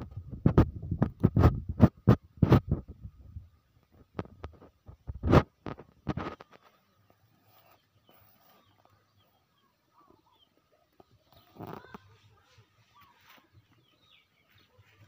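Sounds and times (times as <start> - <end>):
faint bird chirps: 6.5 - 15.0.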